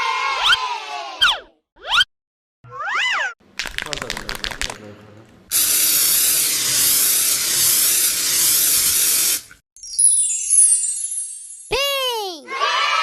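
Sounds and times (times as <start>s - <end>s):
loud spraying hiss: 5.5s - 9.4s
chiming tones: 9.8s - 11.8s.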